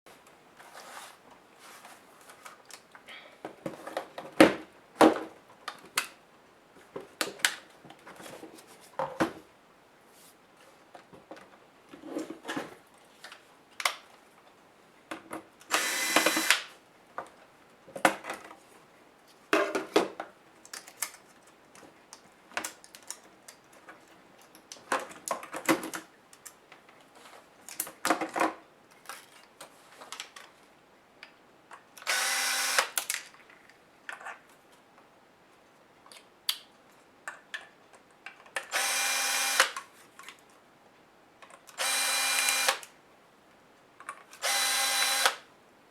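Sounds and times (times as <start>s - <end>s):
electric screwdriver running: 15.7s - 16.6s, 32.1s - 33.0s, 38.7s - 39.8s, 41.8s - 42.8s, 44.4s - 45.4s.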